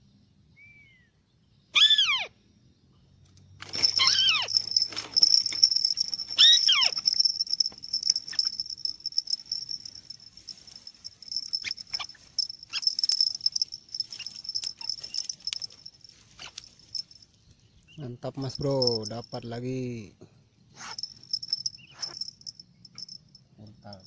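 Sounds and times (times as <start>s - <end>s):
insects droning: 2.4s - 24.0s
short clicks and rustles: 3.2s - 17.3s
bird call gliding downward: 3.8s - 4.6s, 5.5s - 8.9s.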